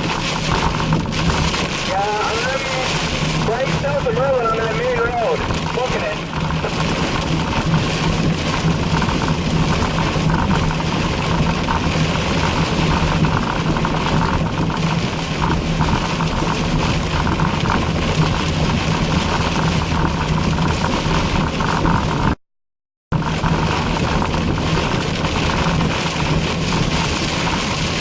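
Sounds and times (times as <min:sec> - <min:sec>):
car interior road noise: 0:00.0 - 0:22.4, 0:23.2 - 0:28.0.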